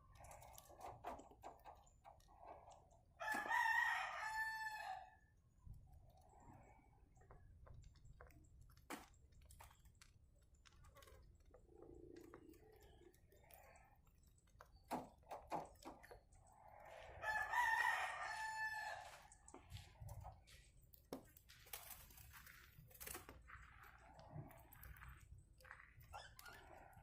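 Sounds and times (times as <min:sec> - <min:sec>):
rooster crowing: 0:03.2 - 0:05.3, 0:17.2 - 0:19.3.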